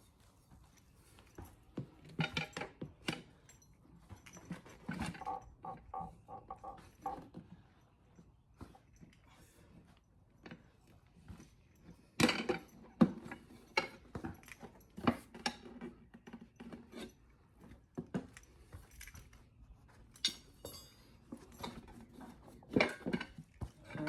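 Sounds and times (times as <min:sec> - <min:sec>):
tire spoons clinking on wheel rim: 0:20.1 - 0:21.8.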